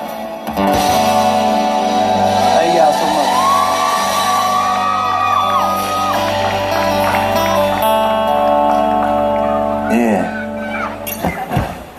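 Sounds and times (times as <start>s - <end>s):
live country band: 0.0s - 11.9s
audience shouting and whooping: 2.2s - 11.1s.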